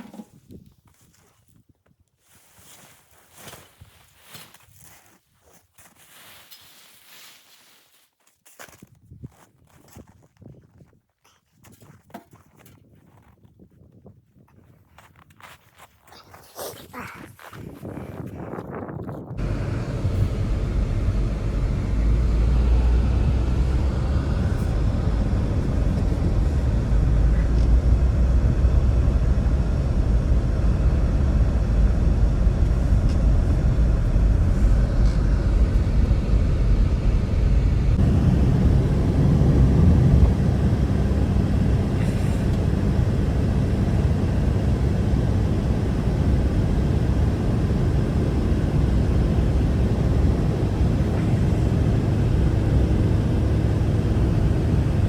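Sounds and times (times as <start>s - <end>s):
wind buffeting on microphone: 16.8s - 55.0s
blizzard wind blowing hard: 16.9s - 55.0s.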